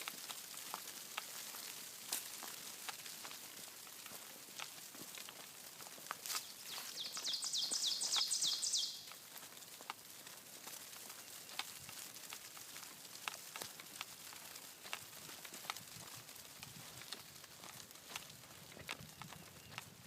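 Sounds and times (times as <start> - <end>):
insects ticking on dry leaves: 0.0 - 20.0
bird singing high falling notes: 6.7 - 9.0.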